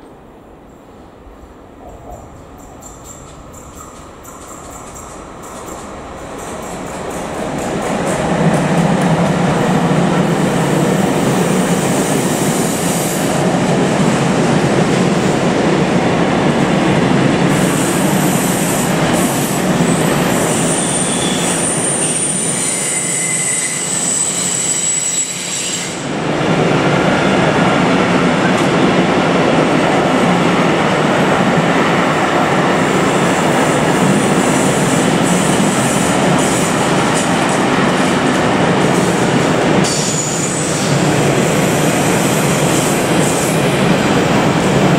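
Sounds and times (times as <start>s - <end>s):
steel wheels on rails: 2.0s - 13.3s.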